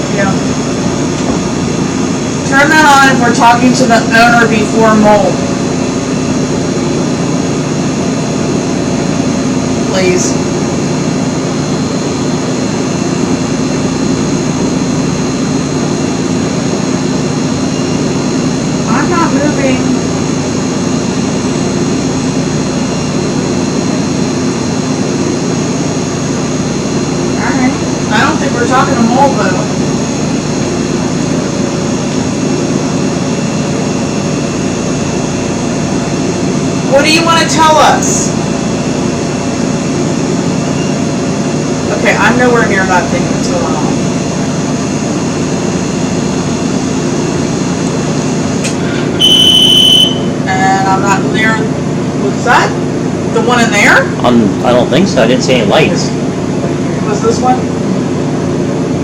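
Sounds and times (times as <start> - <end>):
thin high whine: 48.7 - 51.5.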